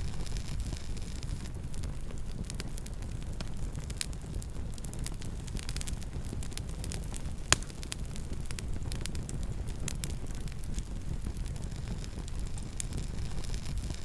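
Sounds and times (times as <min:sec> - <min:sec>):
campfire crackling: 0:00.0 - 0:14.0
low steady rumble: 0:00.0 - 0:14.0.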